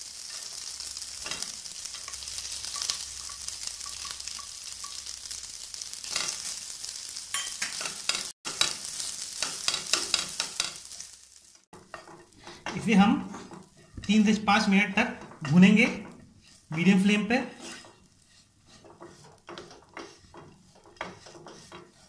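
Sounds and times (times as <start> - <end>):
corn sizzling in a frying pan: 0.0 - 22.0
wooden spatula scraping and stirring: 11.7 - 22.0.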